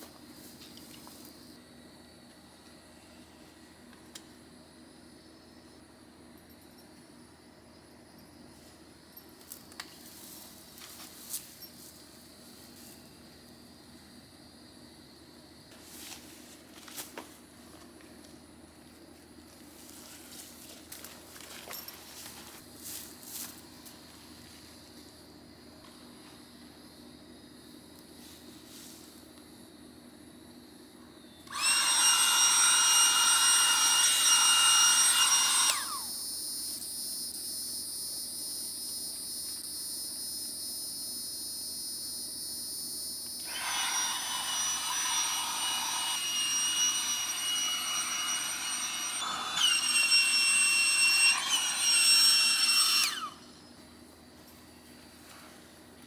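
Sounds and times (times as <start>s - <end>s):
small electric motor whining: 31.4s - 37.2s, 43.2s - 53.8s.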